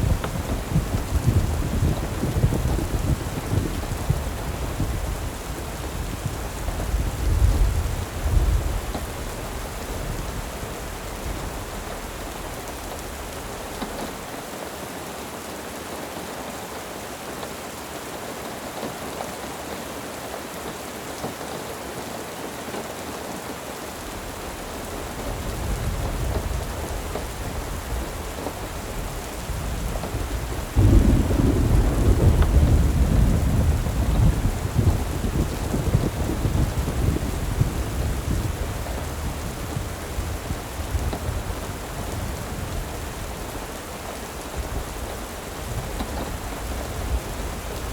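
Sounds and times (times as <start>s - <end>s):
rolling thunder: 0.0s - 14.3s, 24.0s - 43.8s
steady rain: 0.0s - 47.9s.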